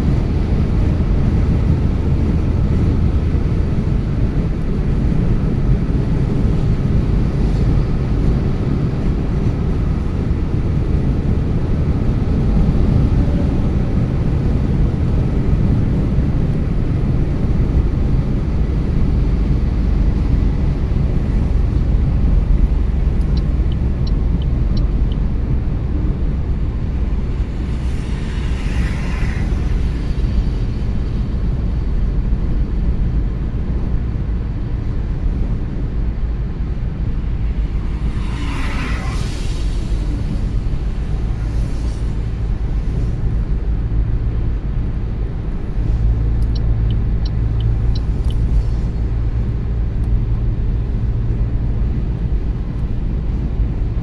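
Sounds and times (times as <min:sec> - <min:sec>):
car road and engine noise: 0:00.0 - 0:54.0.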